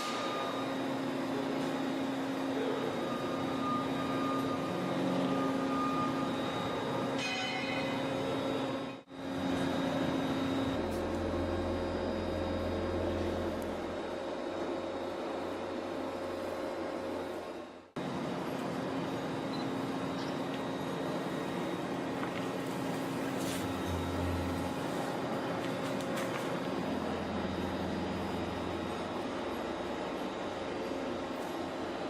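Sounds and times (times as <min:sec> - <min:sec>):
deeper hum: 0:02.3 - 0:17.0.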